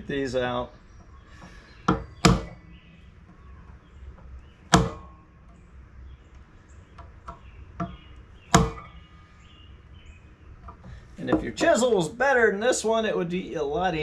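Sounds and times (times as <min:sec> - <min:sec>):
hammer striking chisel: 0:01.9 - 0:02.6, 0:04.7 - 0:05.1, 0:07.8 - 0:08.9.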